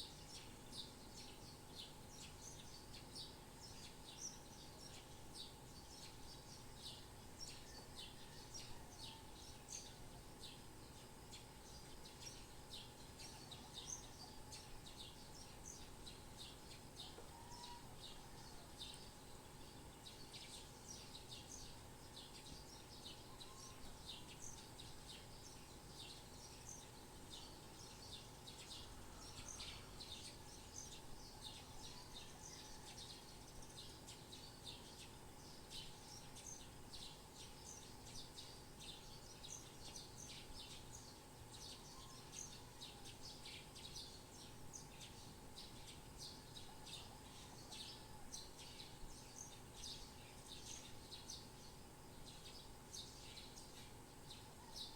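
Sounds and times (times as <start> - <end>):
faint background hiss: 0.0 - 54.9
small birds chirping: 0.0 - 54.9.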